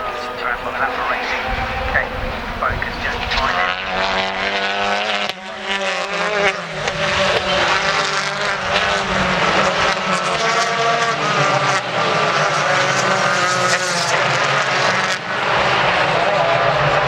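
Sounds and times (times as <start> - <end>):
race car engines at high revs: 0.0 - 17.0.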